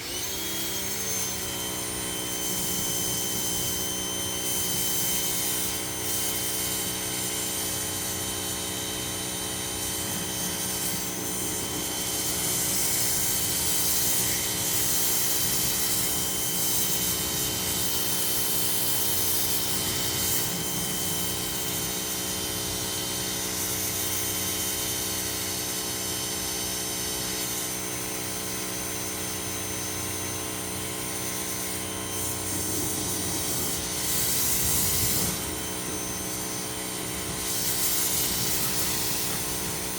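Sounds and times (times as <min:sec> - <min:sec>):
pressure washer motor hum: 0:00.0 - 0:39.9
water jet hissing: 0:31.3 - 0:39.9.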